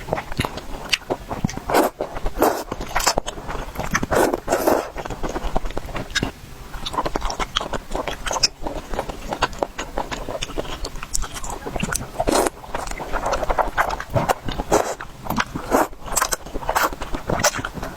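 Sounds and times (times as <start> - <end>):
wet chewing and biting: 0.0 - 17.9
slurping noodles: 0.1 - 6.2, 10.0 - 17.9.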